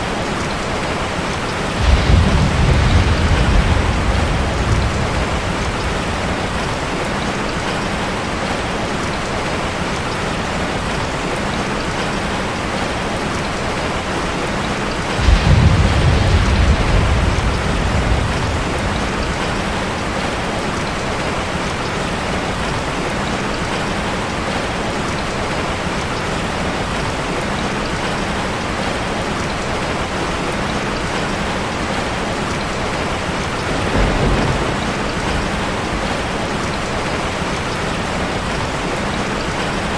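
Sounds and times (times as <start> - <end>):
rain drumming on metal roof: 0.0 - 39.9
low rumble: 1.8 - 7.2, 15.2 - 20.3.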